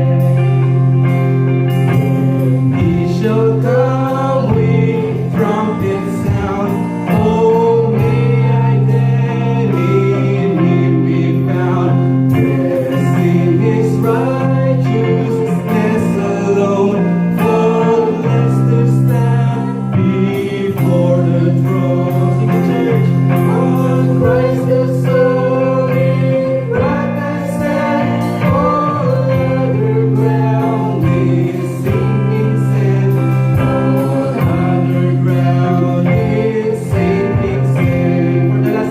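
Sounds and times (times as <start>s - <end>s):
congregation singing a hymn: 0.0s - 38.9s
instrumental accompaniment: 0.0s - 38.9s.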